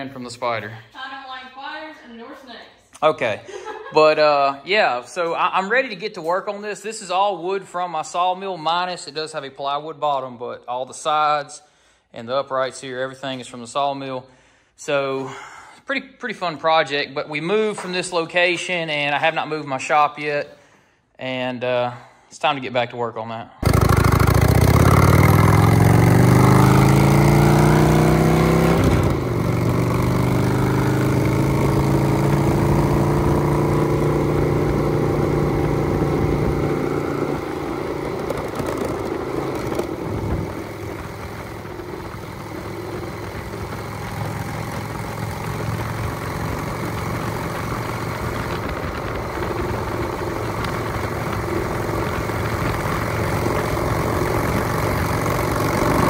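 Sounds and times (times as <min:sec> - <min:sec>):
truck engine accelerating: 0:23.6 - 0:56.0.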